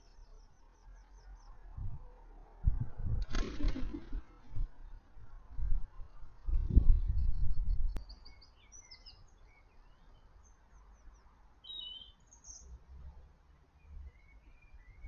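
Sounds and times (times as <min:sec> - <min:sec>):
birds chirping: 0:07.0 - 0:12.7.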